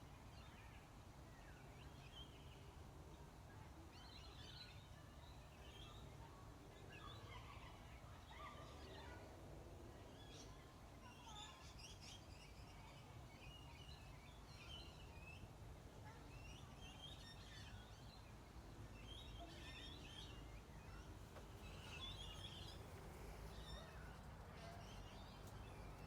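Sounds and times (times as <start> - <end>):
small birds chirping: 10.0 - 26.0.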